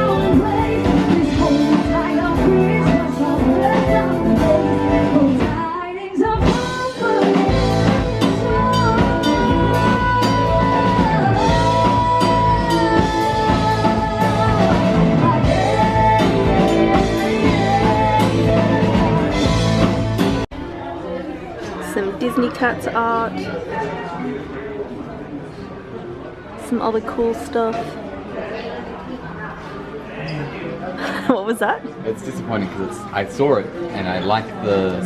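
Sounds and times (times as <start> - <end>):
rock band playing: 0.0 - 5.6, 6.4 - 20.5
person singing long notes: 6.7 - 19.6.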